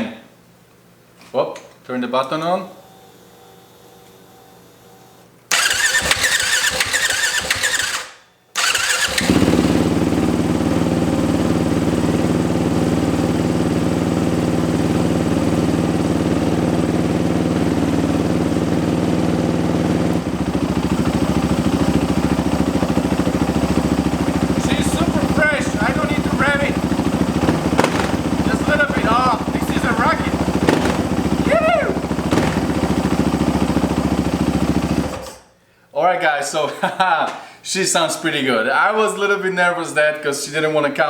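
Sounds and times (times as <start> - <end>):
engine idling: 5.5 - 8.0, 8.6 - 35.2
electric starter cranking engine: 5.5 - 35.5.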